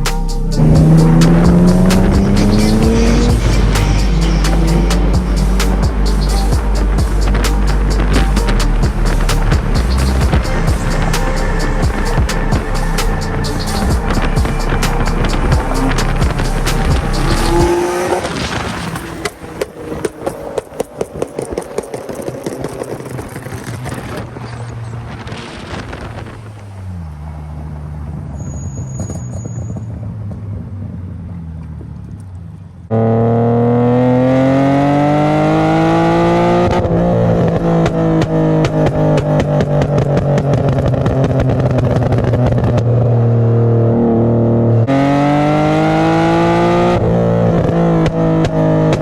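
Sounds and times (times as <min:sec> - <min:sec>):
exhaust pops and crackles: 0:00.0 - 0:32.8, 0:34.9 - 0:44.8, 0:45.6 - 0:49.0
car engine idling: 0:00.0 - 0:32.9
engine accelerating hard: 0:00.0 - 0:49.0.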